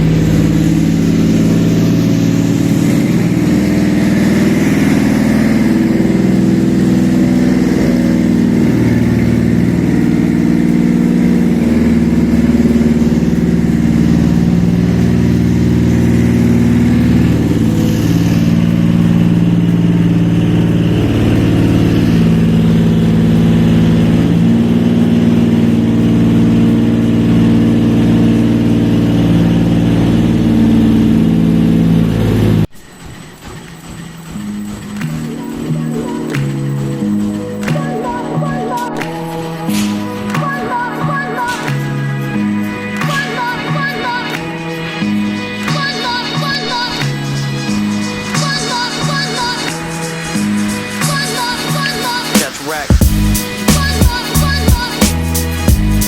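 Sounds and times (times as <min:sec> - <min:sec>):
engine running steadily: 0:00.0 - 0:38.2.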